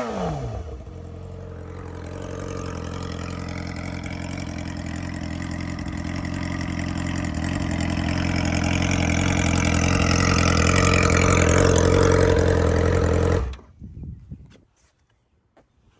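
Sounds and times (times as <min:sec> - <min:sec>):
motorcycle engine idling loudly: 0:00.0 - 0:13.6.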